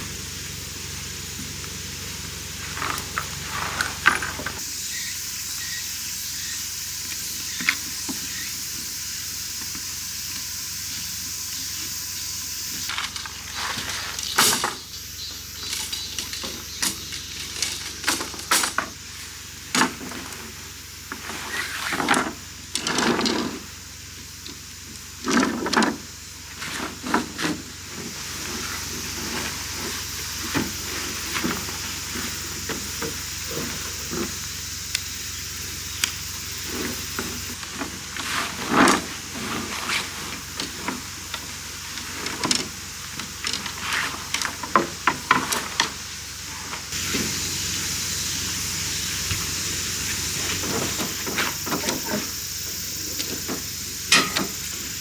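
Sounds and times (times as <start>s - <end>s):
utensils clinking on cookware: 15.5s - 18.9s, 54.1s - 54.8s.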